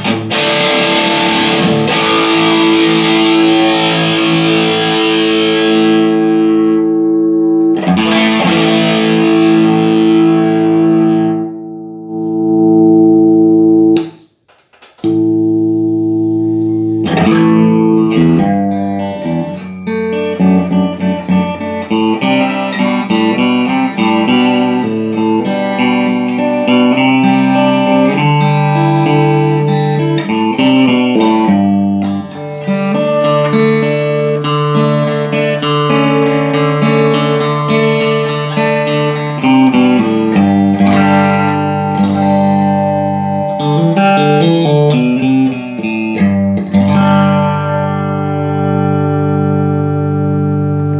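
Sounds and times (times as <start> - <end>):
electric guitar chords and notes: 0.0 - 50.9.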